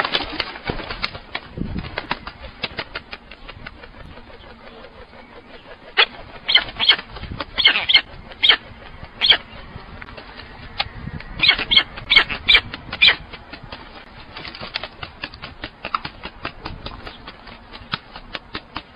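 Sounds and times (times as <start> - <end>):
bird harsh calls: 2.3 - 14.4.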